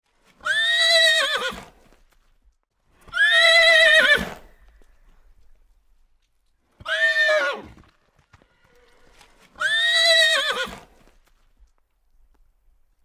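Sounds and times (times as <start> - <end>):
horse neighing: 0.4 - 1.7, 3.1 - 4.5, 6.8 - 7.7, 9.6 - 10.9.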